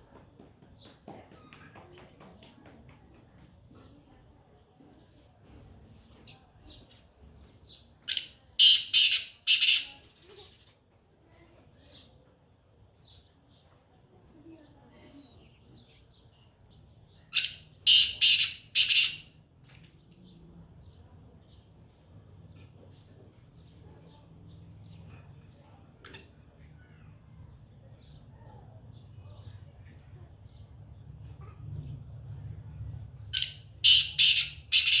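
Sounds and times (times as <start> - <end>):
faint bird chirps: 6.0 - 35.0
bird calling loud notes: 8.1 - 10.0, 17.4 - 19.3, 33.3 - 35.0.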